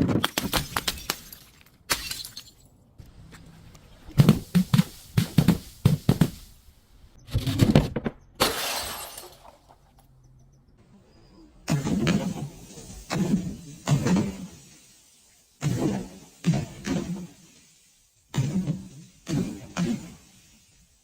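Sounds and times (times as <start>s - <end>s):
glass bottles shattering: 0.5s - 2.7s, 8.4s - 9.9s.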